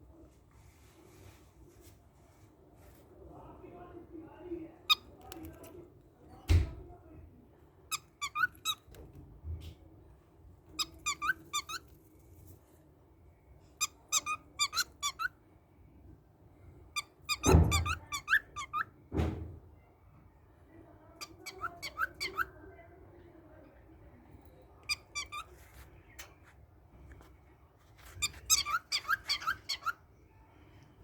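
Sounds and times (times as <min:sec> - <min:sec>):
small birds chirping: 0:21.2 - 0:22.5, 0:24.8 - 0:26.6, 0:28.0 - 0:30.3.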